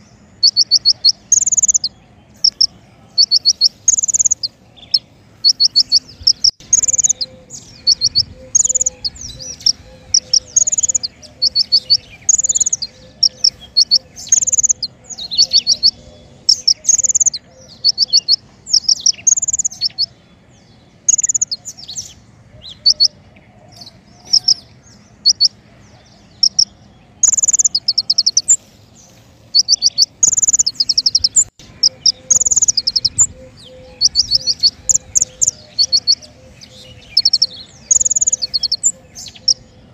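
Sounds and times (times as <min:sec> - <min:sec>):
songbird singing trilled phrases: 0:00.0 - 0:39.9.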